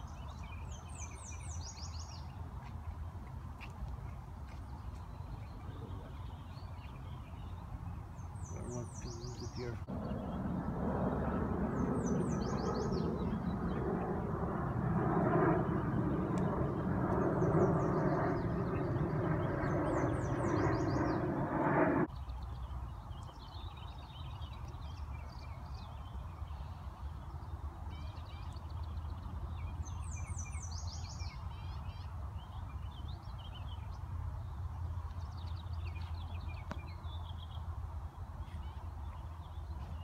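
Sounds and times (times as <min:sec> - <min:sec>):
small birds chirping: 0:00.0 - 0:37.7
engine drone: 0:09.8 - 0:22.1
low steady rumble: 0:09.8 - 0:22.1.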